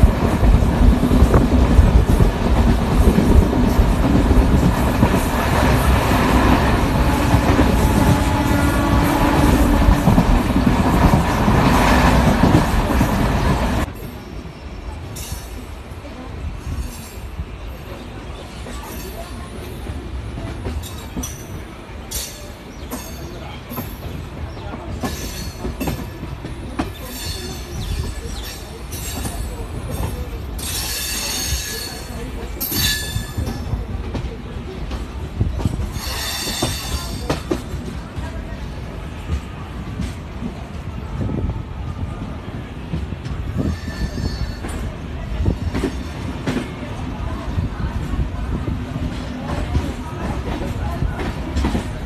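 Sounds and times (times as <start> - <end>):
train wheels rumbling on rails: 0.0 - 52.0.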